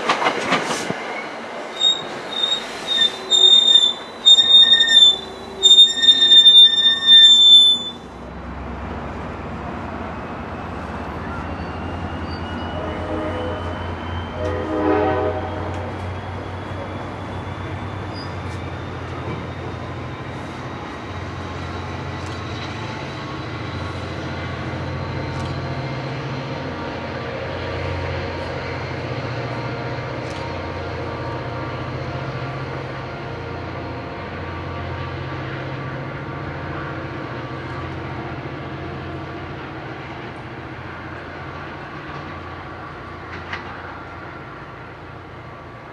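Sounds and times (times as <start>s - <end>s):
diesel locomotive rumble: 0.0s - 45.9s
train wheels squealing: 1.1s - 8.1s, 11.1s - 14.7s, 15.4s - 24.4s.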